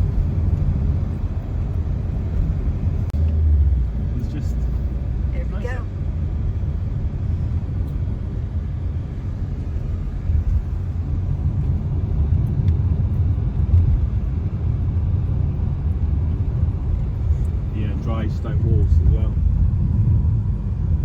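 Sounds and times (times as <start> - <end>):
car exhaust rumbling: 0.0 - 21.0.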